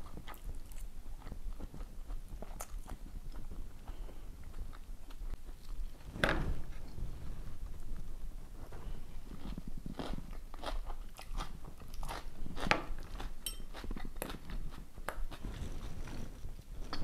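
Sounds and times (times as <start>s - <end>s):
chewing and crunching: 0.0s - 6.0s, 8.9s - 17.0s
spoon clicking on ceramic bowl: 13.4s - 13.7s.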